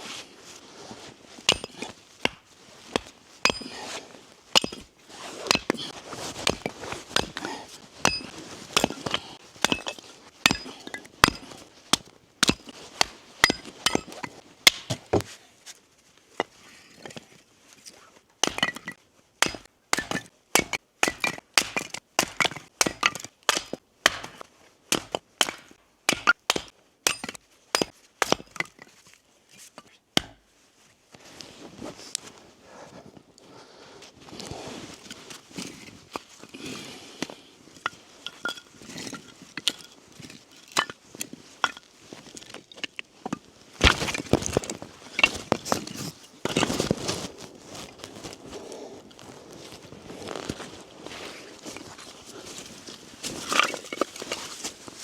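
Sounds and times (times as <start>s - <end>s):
axe chopping wood: 7.2s - 14.1s, 14.7s - 15.3s, 19.4s - 28.7s, 30.2s - 30.5s.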